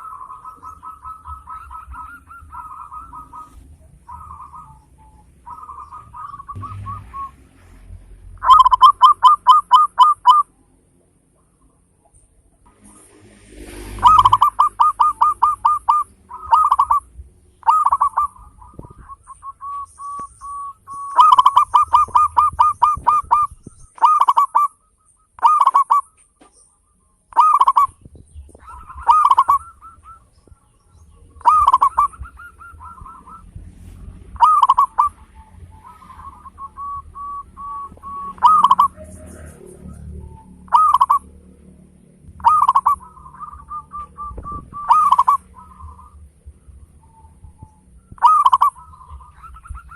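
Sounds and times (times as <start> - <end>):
dove cooing: 0.0 - 7.4, 8.3 - 10.5, 13.9 - 26.4, 27.3 - 28.0, 28.6 - 41.4, 42.3 - 49.9.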